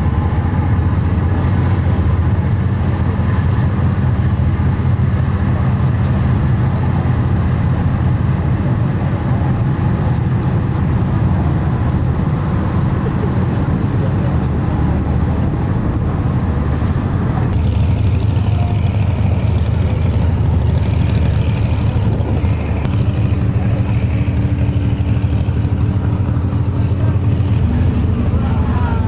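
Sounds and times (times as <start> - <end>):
large engine rumbling: 0.0 - 29.0
steady hum: 15.0 - 29.0.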